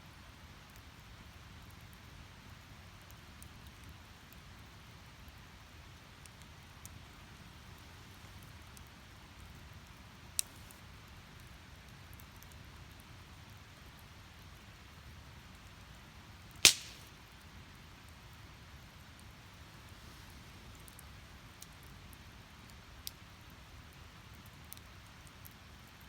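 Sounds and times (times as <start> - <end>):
fire hissing and crackling: 0.4 - 26.0
sharp pop from fire: 16.6 - 17.2.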